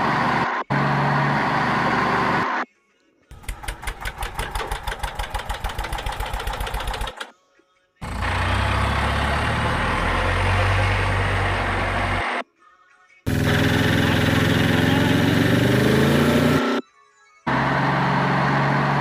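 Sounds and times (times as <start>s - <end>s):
engine chugging: 3.3s - 7.2s, 13.3s - 16.0s.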